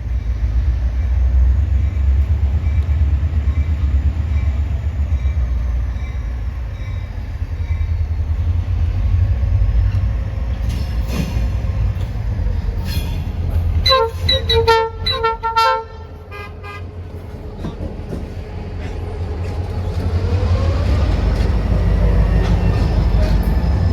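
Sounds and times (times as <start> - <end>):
freight train rumbling past: 0.0 - 23.9
locomotive horn short blasts: 13.8 - 16.9.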